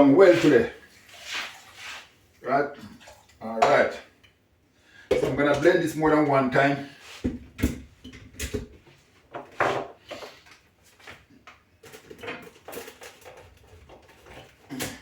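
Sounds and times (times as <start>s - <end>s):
kitchen items knocking and clinking: 3.6s - 4.0s, 5.1s - 5.9s, 7.3s - 10.3s, 11.8s - 15.0s.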